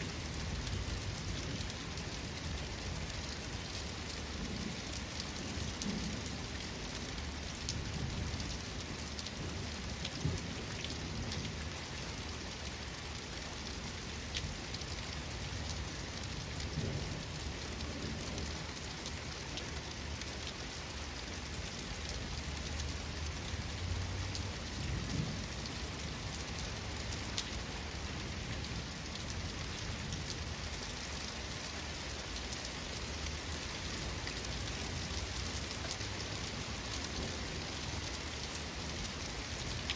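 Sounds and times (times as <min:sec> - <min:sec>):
heavy rain falling: 0:00.0 - 0:39.9
raindrops ticking on hard surface: 0:14.3 - 0:39.9.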